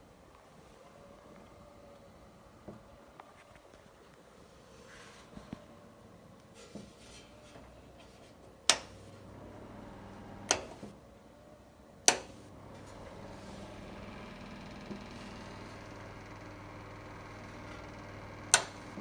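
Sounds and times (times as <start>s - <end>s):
heater fan humming: 7.1s - 19.0s
heater switch clicks: 8.7s - 11.0s, 12.0s - 19.0s.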